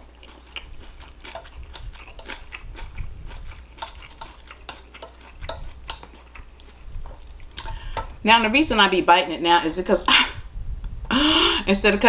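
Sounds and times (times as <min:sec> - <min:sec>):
person chewing food: 0:00.0 - 0:08.2.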